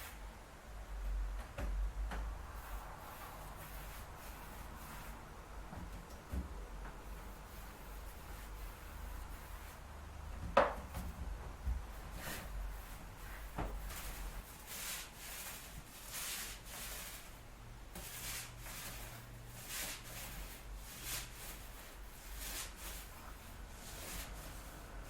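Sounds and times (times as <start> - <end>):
dry rubbing strokes on a surface: 2.5 - 5.4, 7.0 - 10.0, 11.9 - 25.0.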